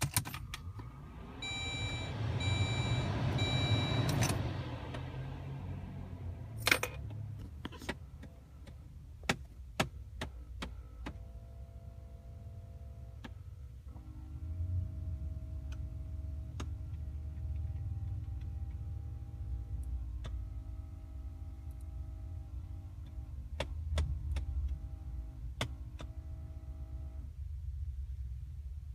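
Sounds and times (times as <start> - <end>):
car chime beeping: 1.3 - 4.7
clicks and pops from car vents: 7.4 - 11.2.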